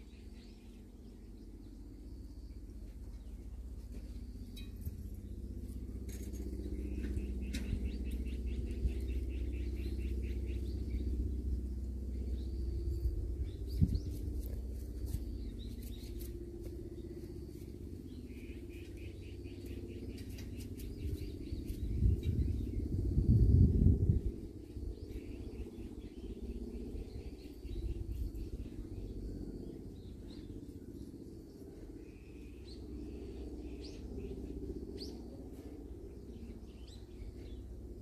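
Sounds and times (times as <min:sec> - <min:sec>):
low rumble: 0:00.0 - 0:38.0.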